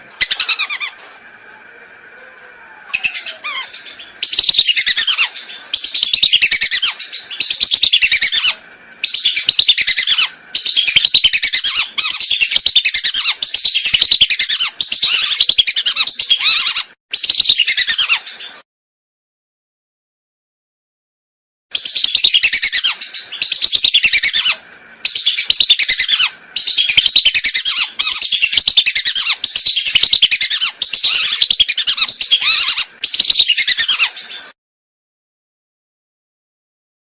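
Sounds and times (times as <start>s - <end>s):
whistling ducks calling: 0.0s - 1.1s, 2.9s - 18.4s, 21.8s - 34.6s.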